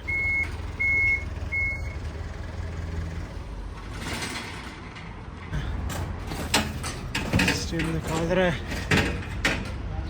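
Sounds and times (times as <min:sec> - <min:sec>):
reversing alarm beeps: 0:00.0 - 0:02.0.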